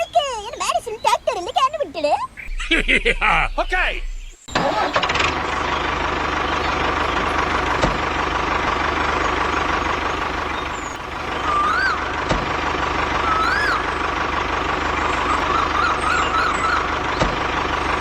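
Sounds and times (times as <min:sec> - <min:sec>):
short rising-and-falling chirp: 0:02.4 - 0:04.5, 0:13.2 - 0:14.0
tractor engine running: 0:02.4 - 0:18.0.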